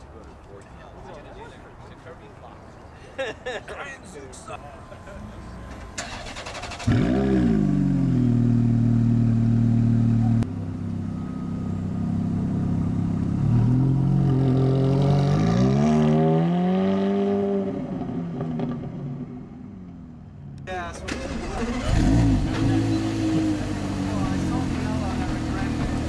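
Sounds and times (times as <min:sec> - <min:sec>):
car accelerating: 0:04.8 - 0:19.5, 0:21.1 - 0:26.0
car engine starting: 0:05.0 - 0:16.1, 0:20.8 - 0:26.0
car engine idling: 0:21.1 - 0:26.0.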